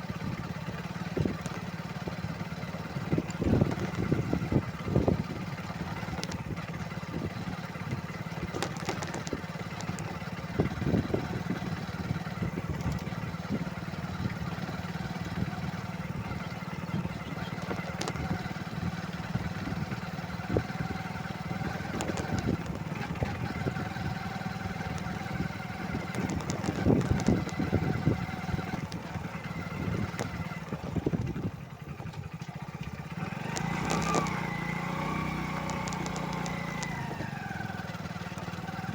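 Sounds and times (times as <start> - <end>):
motorcycle engine running: 0.0 - 38.9
irregular knocks and clatter: 8.3 - 10.2, 17.5 - 18.6, 25.9 - 27.9.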